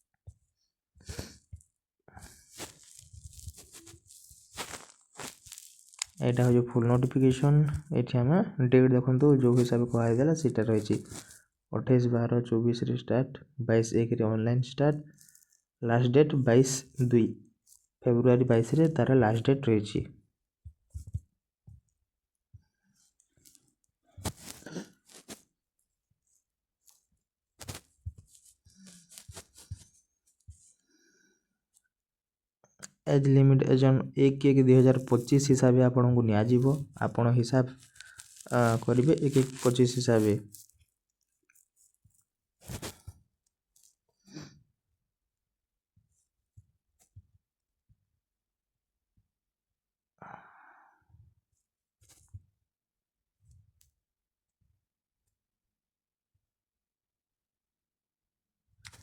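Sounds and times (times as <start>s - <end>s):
person breathing: 1.0s - 1.5s, 50.2s - 51.2s
faint rustles and clicks: 1.1s - 7.9s, 22.9s - 30.8s, 36.4s - 44.1s.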